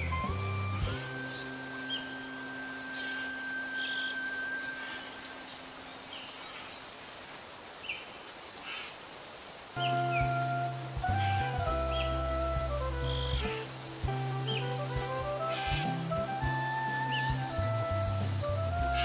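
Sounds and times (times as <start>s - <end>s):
soft background music: 0.0s - 5.7s, 9.8s - 19.0s
insect chorus: 0.0s - 19.0s.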